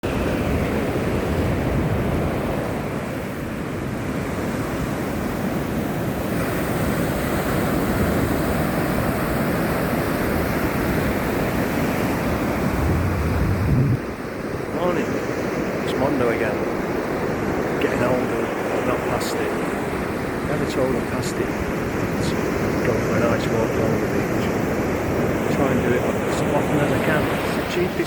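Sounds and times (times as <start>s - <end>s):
wind on microphone: 0.0s - 15.9s
surf breaking on a beach: 0.0s - 28.0s.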